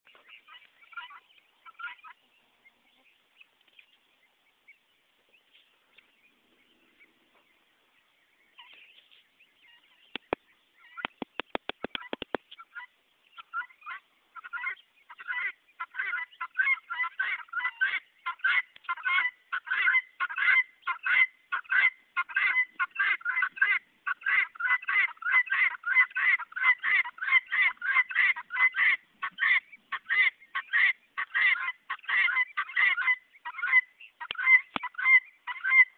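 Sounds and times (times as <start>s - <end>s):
guinea fowl calling: 0.0s - 35.9s
sharp clicks: 10.1s - 10.4s, 11.0s - 12.6s.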